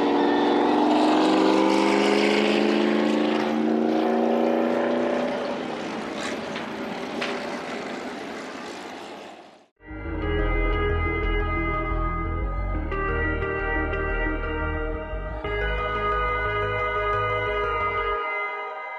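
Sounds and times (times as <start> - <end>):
race car engine at full throttle: 0.0 - 9.4.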